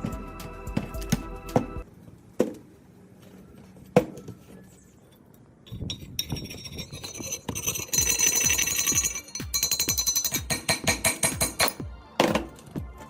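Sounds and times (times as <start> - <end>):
background music: 0.0 - 1.9, 8.1 - 13.0
metal parts rattling: 5.7 - 10.5
sharp metal clinks: 5.7 - 11.8.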